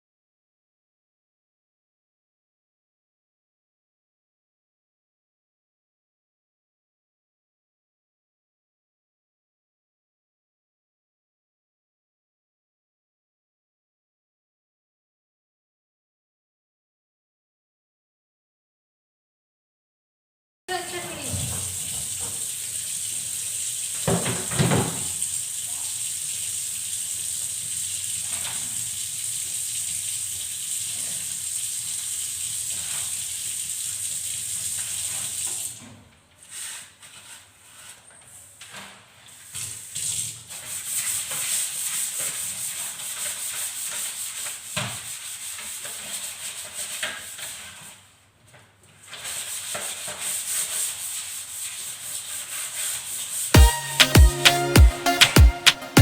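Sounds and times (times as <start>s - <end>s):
scrubbing refrigerator: 20.7s - 54.7s.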